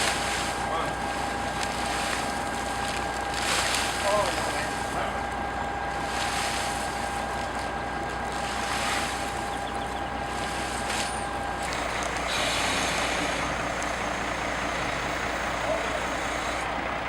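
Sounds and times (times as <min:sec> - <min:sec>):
motor running: 0:00.0 - 0:16.9
high steady whine: 0:08.9 - 0:16.7.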